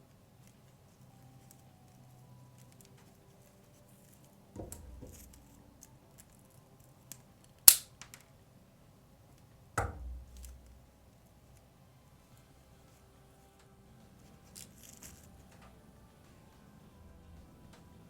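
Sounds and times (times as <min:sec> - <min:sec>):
sharp loud click: 0:07.7 - 0:07.9.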